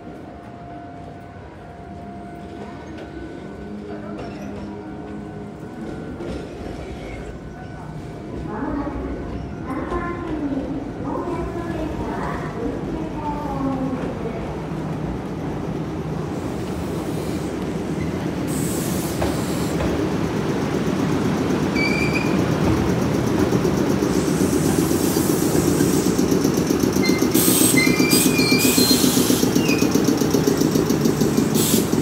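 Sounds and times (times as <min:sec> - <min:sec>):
train wheels rumbling on rails: 0:00.0 - 0:32.0
high-pitched wheel squeals: 0:21.7 - 0:22.4, 0:27.0 - 0:30.0.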